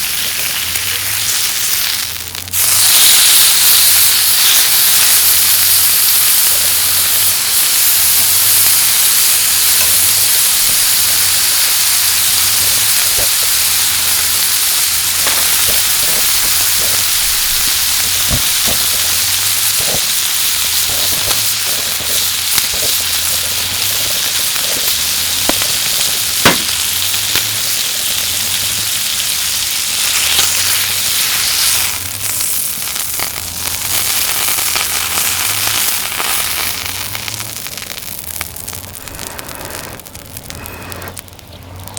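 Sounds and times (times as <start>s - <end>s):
meat sizzling on a grill: 0.0s - 41.9s
fat popping: 7.4s - 28.8s, 30.0s - 41.9s.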